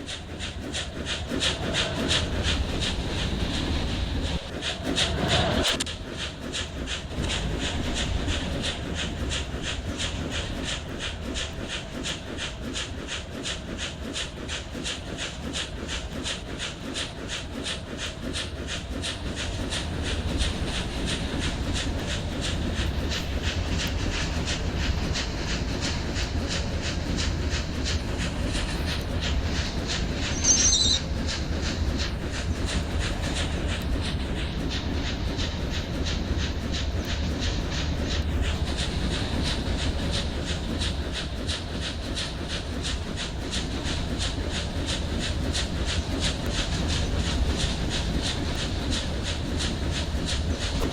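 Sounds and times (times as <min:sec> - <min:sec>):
low rumble of train: 0:00.0 - 0:50.9
train wheels clickety-clack: 0:00.0 - 0:50.9
high-pitched squeal: 0:30.2 - 0:31.1.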